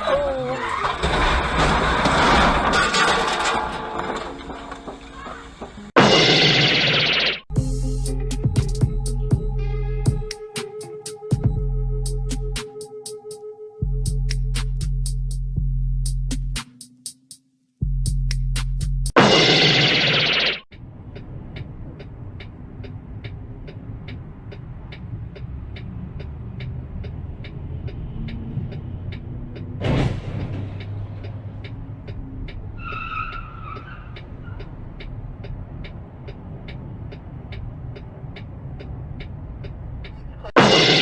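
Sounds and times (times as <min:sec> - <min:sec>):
road and engine rumble: 0:00.0 - 0:06.2, 0:06.8 - 0:16.6, 0:20.6 - 0:41.0
fast even ticking: 0:19.5 - 0:29.8.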